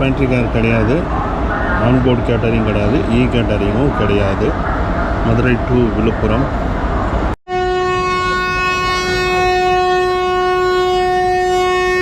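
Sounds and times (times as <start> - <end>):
locomotive horn blast: 7.5 - 12.0.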